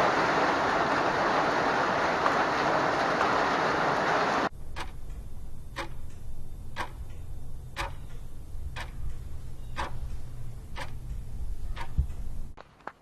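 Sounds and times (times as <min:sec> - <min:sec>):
electric fuel pump ticking: 0:04.5 - 0:12.5
steady low rumble: 0:04.5 - 0:12.6.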